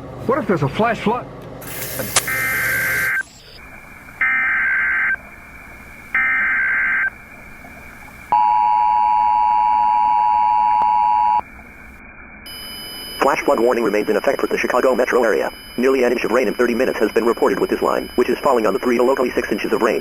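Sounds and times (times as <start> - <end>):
two-tone attention signal: 2.2 - 3.3, 8.3 - 11.4, 12.5 - 20.0.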